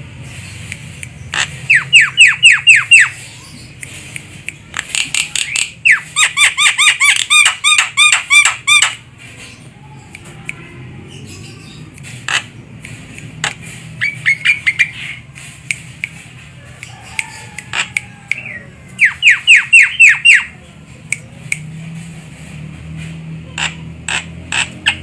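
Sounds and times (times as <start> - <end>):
bird sharp clicks: 11.9 - 20.4.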